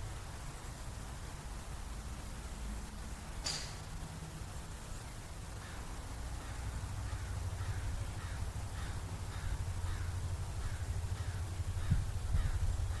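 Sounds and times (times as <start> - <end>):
wind rumble on microphone: 7.6 - 13.0.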